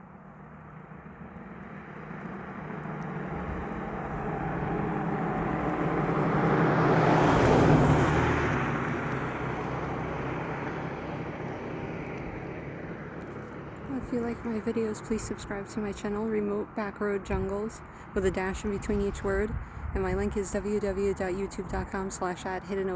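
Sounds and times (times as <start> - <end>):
vehicle driving past: 0.0 - 15.6.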